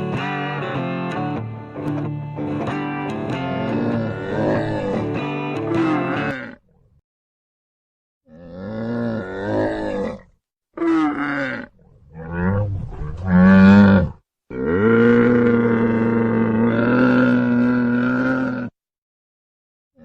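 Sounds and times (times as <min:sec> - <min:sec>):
camel groaning bellows: 0:03.4 - 0:06.6, 0:08.3 - 0:18.8.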